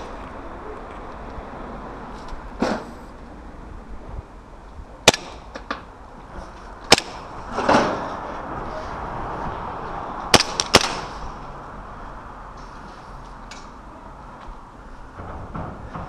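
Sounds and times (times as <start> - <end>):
airsoft guns firing: 5.0 - 5.6, 6.9 - 7.3, 10.3 - 11.2.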